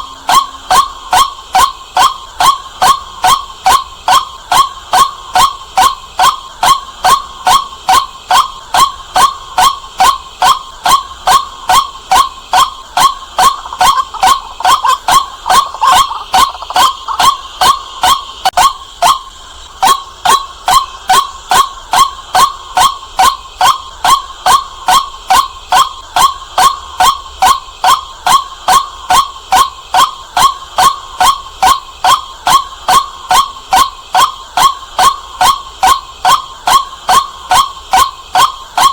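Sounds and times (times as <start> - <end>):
waterhen calling: 0.0 - 25.9.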